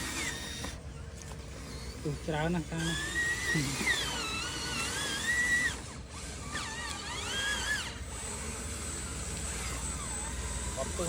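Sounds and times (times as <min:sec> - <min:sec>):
small electric motors whining: 0:00.0 - 0:11.0.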